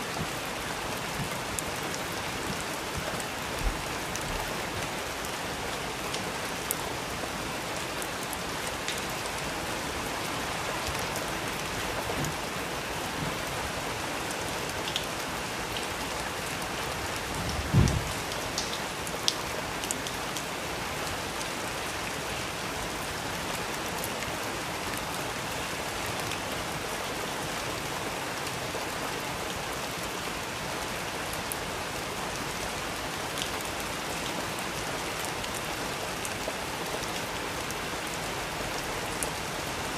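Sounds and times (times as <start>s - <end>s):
steady rain: 0.0s - 39.9s
low thump: 17.7s - 18.2s.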